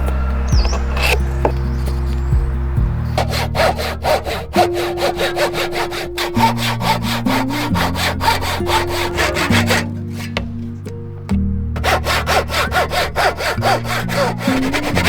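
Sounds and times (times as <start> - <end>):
soft background music: 0.0 - 15.0
hand saw cutting wood: 3.2 - 10.6, 11.8 - 15.0.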